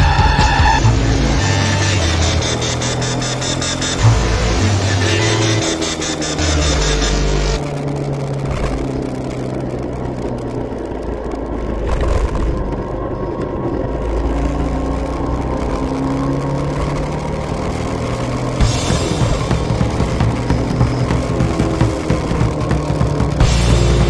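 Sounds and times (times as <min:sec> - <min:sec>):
motorcycle engine running: 0:00.0 - 0:24.0
wind rumble: 0:07.5 - 0:24.0.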